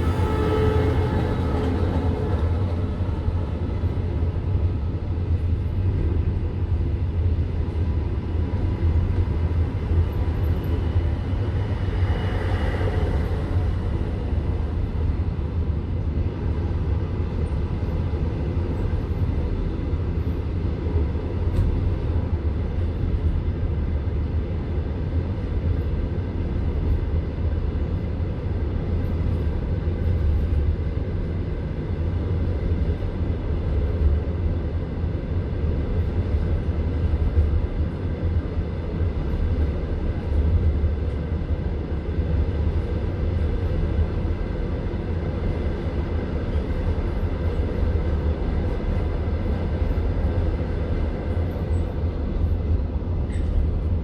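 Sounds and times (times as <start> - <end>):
train carriage rumbling on rails: 0.0 - 54.0.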